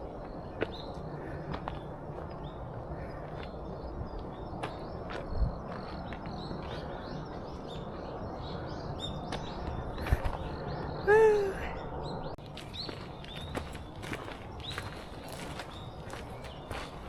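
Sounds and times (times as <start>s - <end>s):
low outdoor rumble: 0.0s - 17.0s
small birds chirping: 0.0s - 17.0s.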